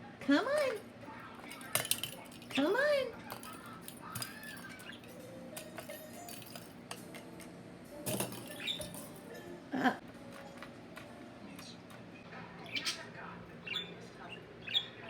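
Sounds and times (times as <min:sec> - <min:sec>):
budgerigars chattering: 0:12.6 - 0:15.0.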